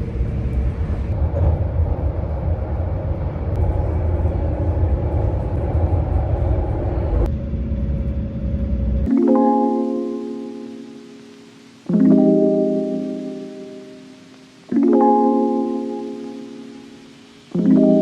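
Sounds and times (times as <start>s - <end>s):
vehicle rumbling: 0.0s - 9.1s.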